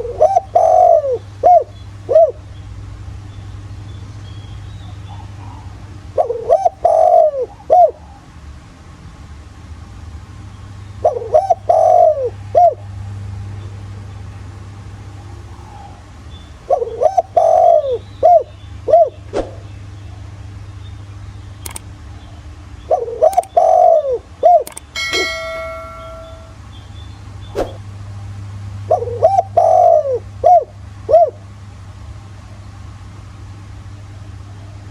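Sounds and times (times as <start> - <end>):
dove cooing: 0.0 - 2.4, 5.1 - 8.2, 11.0 - 12.8, 16.7 - 19.2, 22.9 - 26.4, 28.9 - 31.4
steady ringing tone: 24.9 - 27.2.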